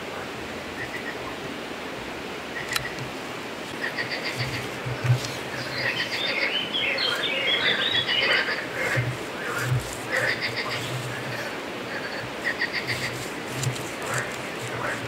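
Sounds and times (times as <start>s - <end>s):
steady hiss: 0.0s - 15.0s
birds chirping: 3.7s - 15.0s.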